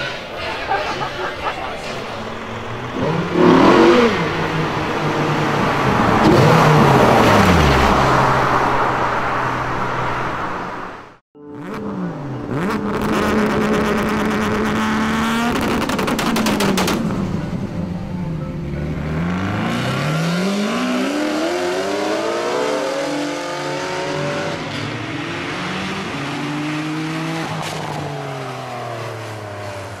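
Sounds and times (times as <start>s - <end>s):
car engine accelerating: 0.0s - 30.0s
car engine revving: 0.4s - 30.0s
sharp exhaust cracks: 12.5s - 17.6s.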